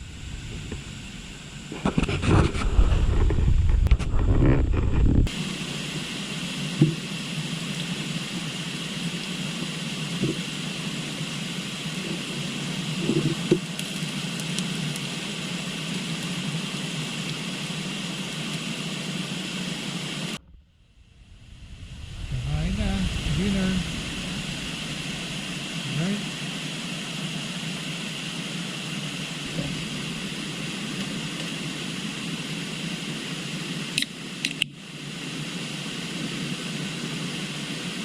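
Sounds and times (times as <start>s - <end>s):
low rumble: 0.0s - 5.3s, 20.4s - 26.6s
outdoor ambience hiss: 0.0s - 38.0s.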